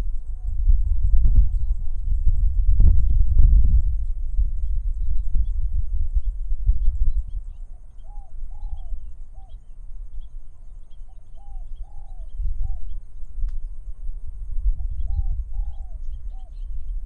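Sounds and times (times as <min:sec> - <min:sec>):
gusting wind rumble: 0:00.0 - 0:17.0
small birds chirping: 0:00.2 - 0:13.9, 0:14.7 - 0:17.0
dove cooing: 0:07.7 - 0:09.6, 0:10.5 - 0:13.0, 0:14.8 - 0:16.7.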